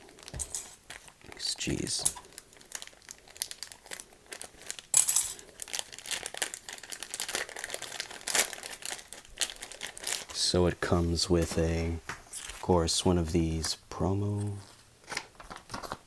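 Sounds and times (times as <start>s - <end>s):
sharp crackle of packaging: 0.0s - 10.6s, 14.4s - 16.0s
packaging crinkling and rustling: 0.0s - 13.6s, 14.3s - 16.0s.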